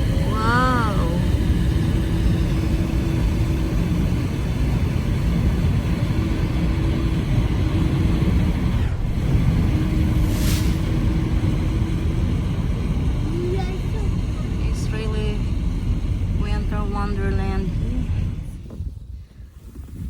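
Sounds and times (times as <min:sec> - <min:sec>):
faint steady hum: 0:00.0 - 0:20.0
wind buffeting microphone: 0:00.0 - 0:20.0
brief hiss: 0:10.2 - 0:11.0.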